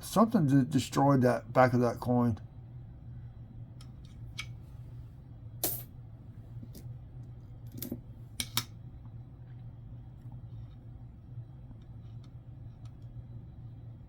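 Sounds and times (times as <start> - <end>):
steady low hum: 0.0 - 14.0
coins clicking: 5.6 - 5.9.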